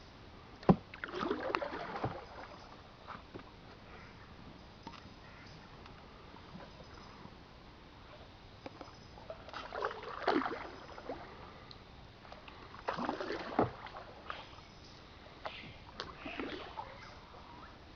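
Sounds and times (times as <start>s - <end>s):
steady background hiss: 0.0s - 17.9s
paddle splashing in water: 0.6s - 3.6s, 9.2s - 11.4s, 12.2s - 14.6s, 15.5s - 17.8s.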